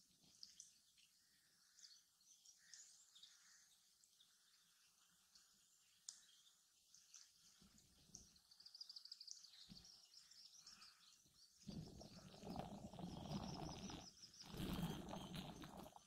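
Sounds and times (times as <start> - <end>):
small bird twittering: 8.1 - 16.0.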